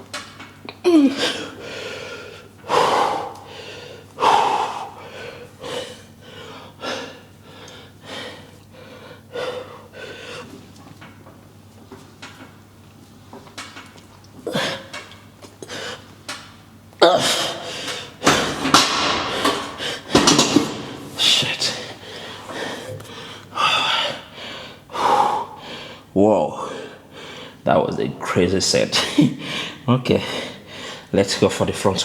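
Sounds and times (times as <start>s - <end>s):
man breathing hard and gasping: 1.1s - 10.6s, 17.0s - 27.6s, 29.2s - 31.1s.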